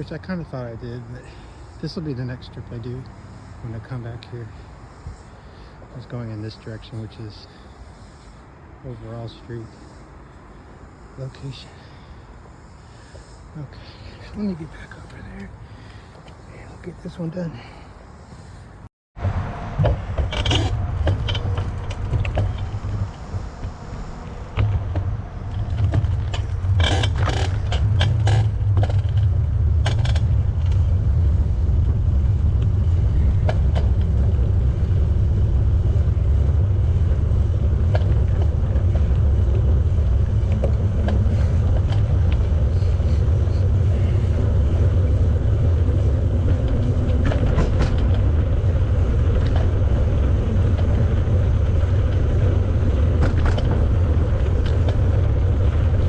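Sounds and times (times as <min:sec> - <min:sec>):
bicycle tyres rolling on pavement: 0:00.0 - 0:56.0
wind on microphone: 0:19.2 - 0:56.0
sharp clicks and rattles: 0:19.8 - 0:23.7, 0:24.4 - 0:56.0.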